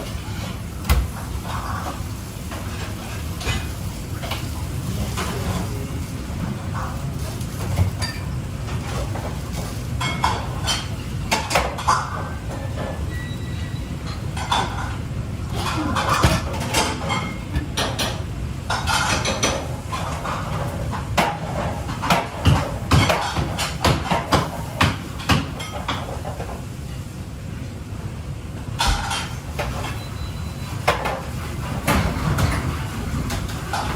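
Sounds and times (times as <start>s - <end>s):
cookware and utensils clattering: 0.0s - 26.6s, 28.8s - 33.9s.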